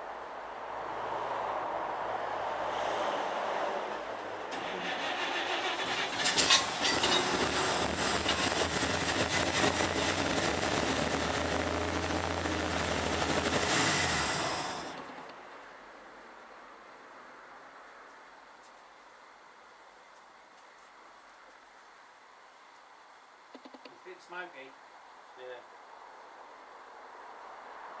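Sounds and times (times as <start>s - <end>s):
engine cranking: 4.5s - 15.4s
engine running and dying: 4.5s - 15.4s.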